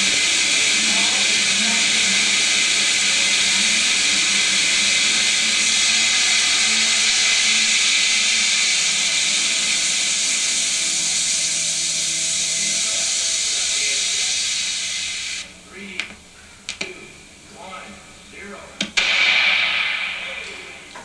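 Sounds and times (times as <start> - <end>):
water rushing through nozzle: 0.0 - 15.5.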